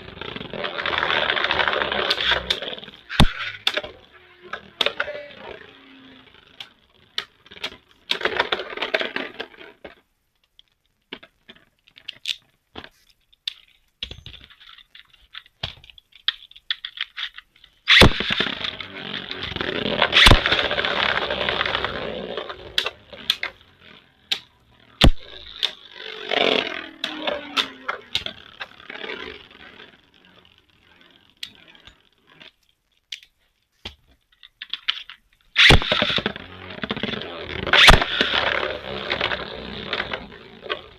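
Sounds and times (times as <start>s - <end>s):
tops rattling and scraping: 11.1s - 40.9s.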